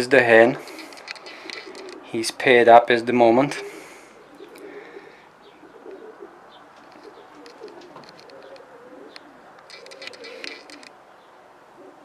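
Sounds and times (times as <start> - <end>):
pigeons cooing: 0.0 - 2.5, 3.5 - 12.0
faint ticks: 6.8 - 11.0.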